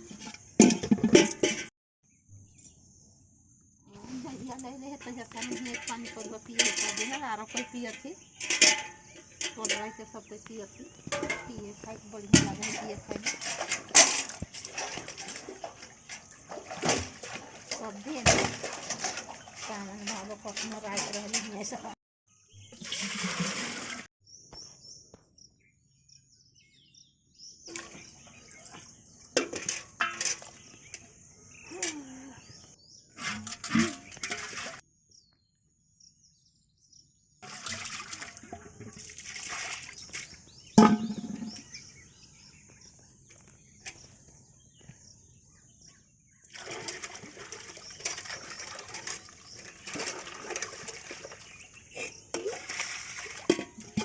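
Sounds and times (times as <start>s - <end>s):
water pouring and splashing: 0.0s - 1.7s, 5.2s - 10.0s, 10.8s - 22.0s, 22.7s - 24.1s, 27.7s - 31.0s, 33.2s - 34.8s, 37.4s - 41.8s, 46.5s - 54.0s.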